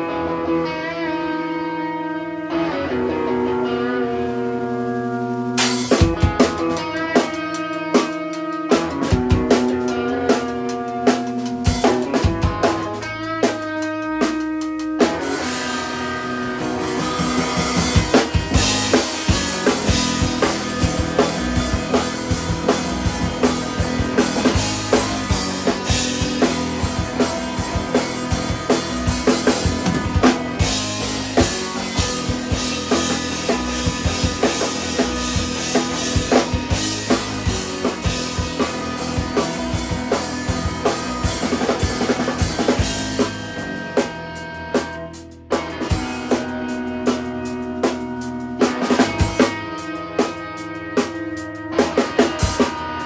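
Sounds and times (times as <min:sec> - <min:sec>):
guitar: 0:00.0 - 0:53.0
instrumental band playing: 0:00.0 - 0:53.0
drum kit kick and snare: 0:05.6 - 0:13.6, 0:16.6 - 0:49.6, 0:51.8 - 0:53.0.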